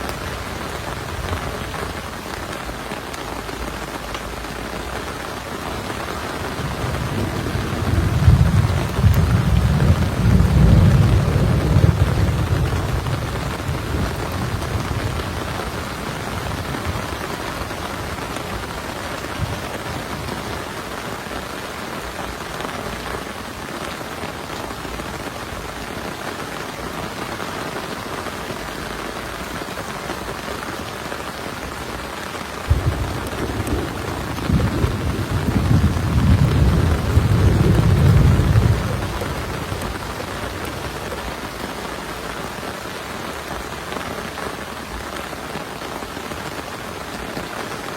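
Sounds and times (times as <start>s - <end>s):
heavy rain falling: 0.0s - 47.9s
thunder rumbling: 6.2s - 20.8s, 32.6s - 41.6s
sharp thunder clap: 6.6s - 17.1s, 32.7s - 41.0s.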